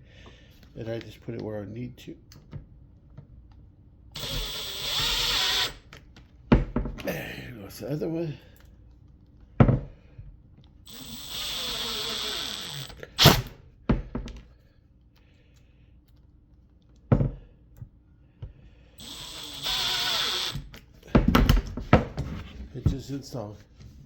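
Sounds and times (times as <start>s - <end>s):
power drill driving screws: 4.2s - 5.9s, 10.9s - 13.6s, 19.0s - 20.9s.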